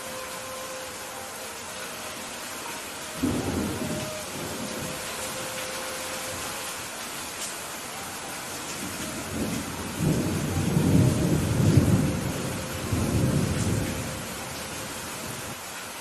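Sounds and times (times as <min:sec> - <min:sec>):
steady rain: 0:00.0 - 0:16.0
rolling thunder: 0:03.2 - 0:05.4, 0:08.8 - 0:15.5.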